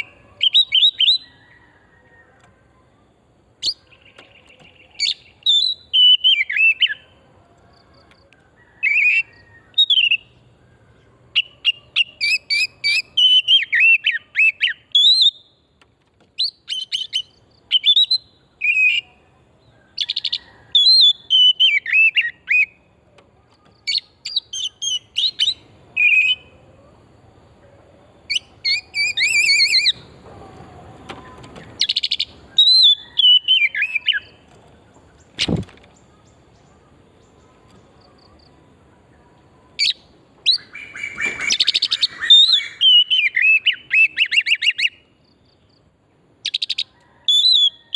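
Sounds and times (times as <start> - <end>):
songbird whistling and chattering: 0.0 - 1.4, 3.6 - 7.2, 8.8 - 10.4, 11.3 - 15.6, 16.4 - 19.2, 20.0 - 22.9, 23.8 - 26.6, 28.2 - 30.2, 31.3 - 34.4, 39.8 - 45.1, 46.4 - 47.9.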